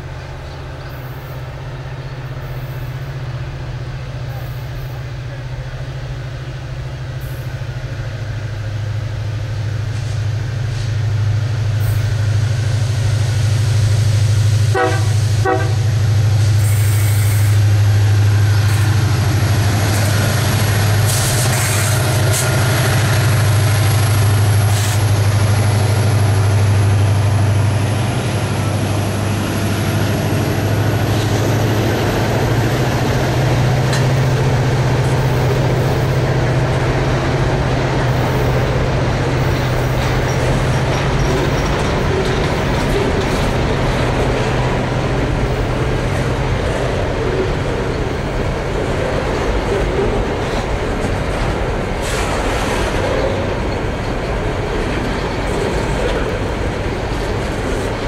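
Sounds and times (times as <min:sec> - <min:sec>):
diesel locomotive engine drone: 0:00.0 - 0:58.0
train wagons rumbling and rattling: 0:00.0 - 0:58.0
train horn toots: 0:14.7 - 0:16.0.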